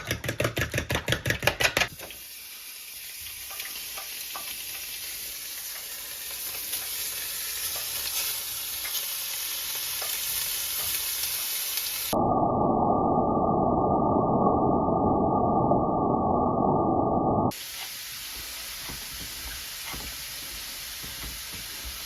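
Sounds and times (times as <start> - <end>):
chicken frying in oil: 0.0 - 12.2, 17.5 - 22.0
muffled low hum: 12.2 - 17.5.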